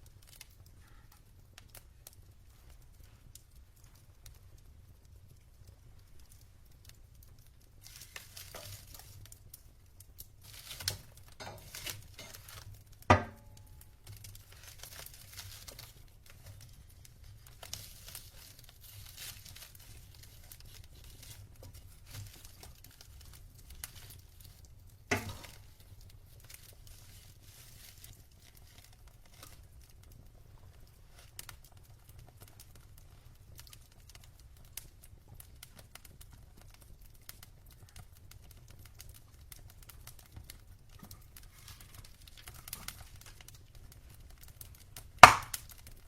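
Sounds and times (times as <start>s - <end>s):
logs crackling in fire: 0.0s - 46.0s
loud sharp pops of fire: 7.7s - 29.6s, 41.0s - 46.0s.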